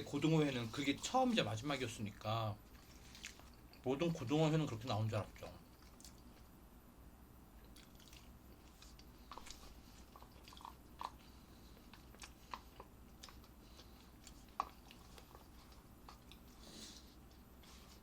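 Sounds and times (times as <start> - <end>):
person chewing: 2.6 - 3.8, 5.6 - 6.5, 7.6 - 18.0.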